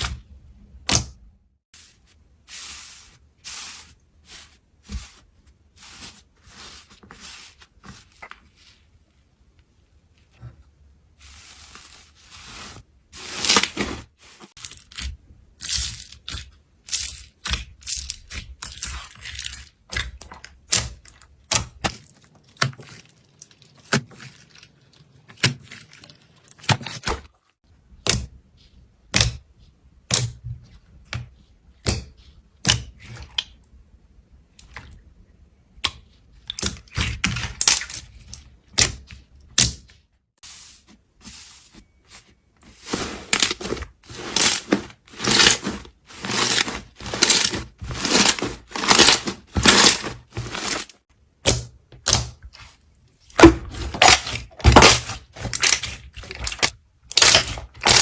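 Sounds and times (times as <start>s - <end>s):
slime popping and crackling: 53.4s - 58.0s.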